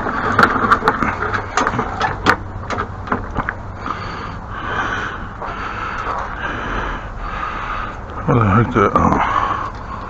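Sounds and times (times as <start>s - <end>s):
sharp knocks and clicks: 0.0s - 3.6s.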